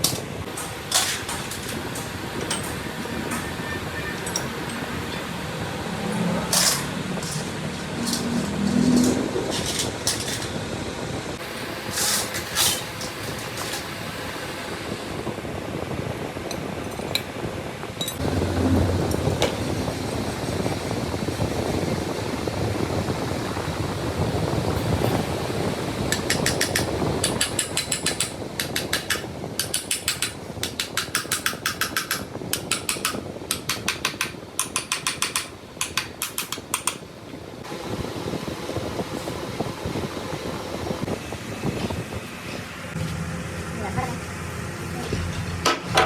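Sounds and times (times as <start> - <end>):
workshop noise: 0.0 - 15.1, 18.0 - 22.2, 23.5 - 37.7, 41.0 - 46.0
impact wrench rattling: 6.5 - 10.6.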